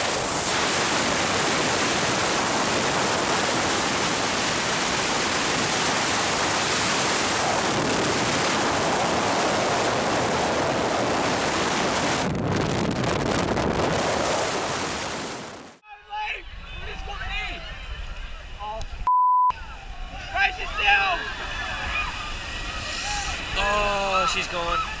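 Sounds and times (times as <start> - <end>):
rushing water: 0.0 - 12.3, 20.8 - 25.0
wind buffeting microphone: 0.0 - 15.8
rushing wind: 0.0 - 25.0.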